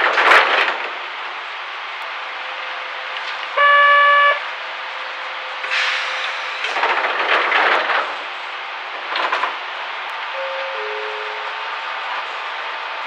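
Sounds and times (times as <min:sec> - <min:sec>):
train background rumble: 0:00.0 - 0:13.0
short signal tone: 0:03.6 - 0:04.4, 0:10.4 - 0:11.5.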